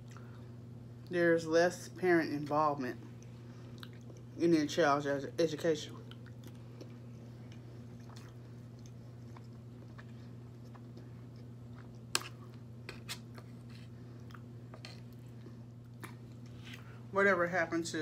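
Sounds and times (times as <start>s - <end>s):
quiet chewing of food: 0.0s - 0.6s, 3.0s - 4.4s, 6.0s - 17.1s.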